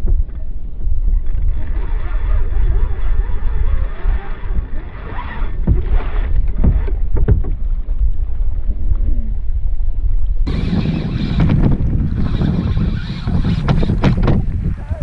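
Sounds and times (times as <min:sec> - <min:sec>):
wind rumble on microphone: 0:00.0 - 0:15.0
sharp knocks: 0:13.2 - 0:14.5.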